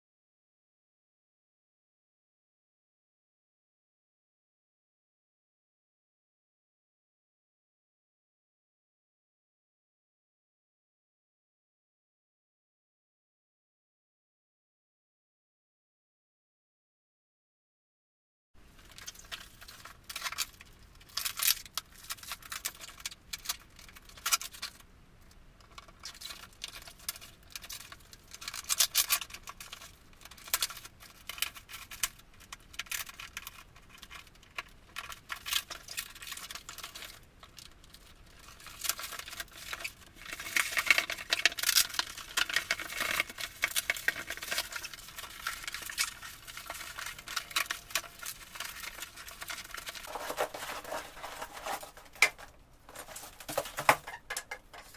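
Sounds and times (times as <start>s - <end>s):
packaging crinkling and tearing: 18.8s - 24.8s, 25.9s - 54.9s.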